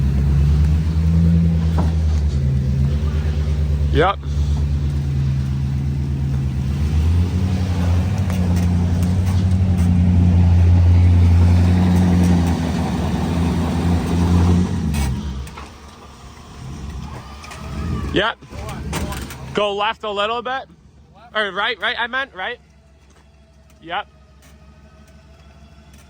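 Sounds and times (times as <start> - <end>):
engine running under load: 0.0 - 26.0.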